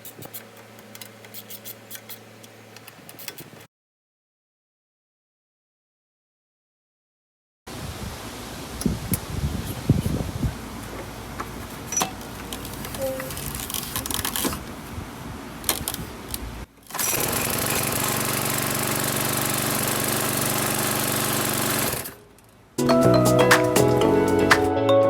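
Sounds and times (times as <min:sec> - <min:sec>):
lawn mower engine running: 0:16.9 - 0:22.2.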